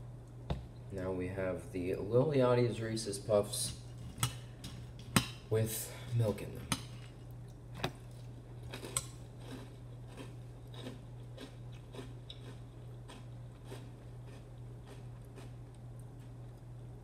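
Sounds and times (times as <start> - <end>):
low steady hum: 0.0 - 17.0
person chewing cereal crunches: 6.1 - 17.0.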